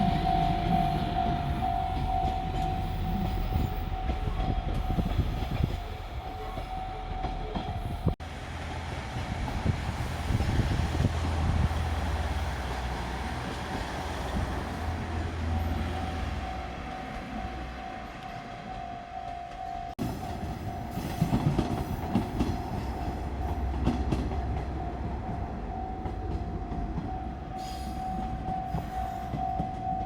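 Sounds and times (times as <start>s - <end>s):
crossing warning bell: 0.0s - 30.0s
train wheels clattering over rails: 20.0s - 30.0s.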